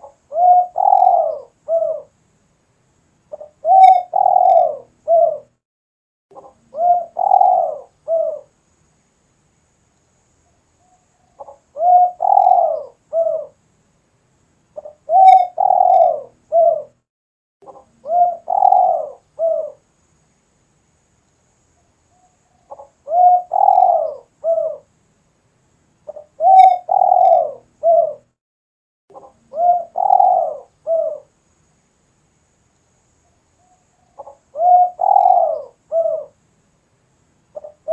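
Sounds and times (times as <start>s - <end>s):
dove cooing: 0.0s - 2.1s, 3.3s - 5.5s, 6.4s - 8.5s, 11.4s - 13.6s, 14.8s - 17.0s, 17.7s - 19.8s, 22.7s - 24.9s, 26.1s - 28.3s, 29.2s - 31.3s, 34.1s - 36.4s, 37.6s - 37.9s.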